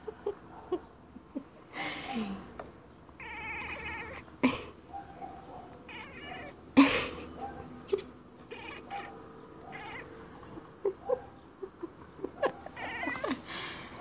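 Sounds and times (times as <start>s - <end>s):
cat chattering: 3.2s - 4.4s, 5.8s - 13.5s.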